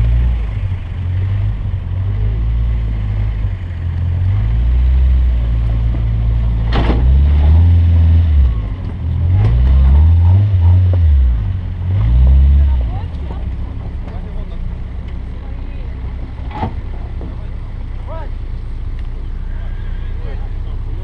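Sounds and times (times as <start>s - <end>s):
car engine driven hard: 0.0s - 21.0s.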